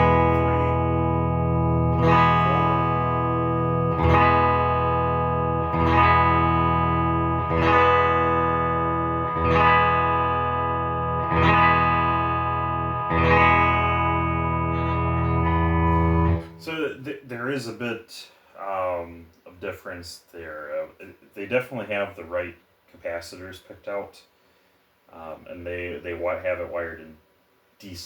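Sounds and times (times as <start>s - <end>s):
electric guitar chord strummed: 0.0s - 16.7s.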